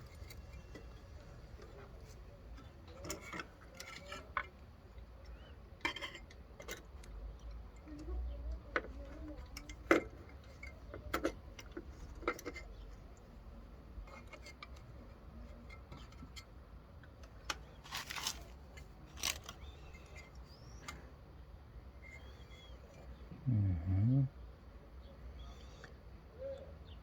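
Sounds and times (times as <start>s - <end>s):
rustling: 17.7s - 20.8s.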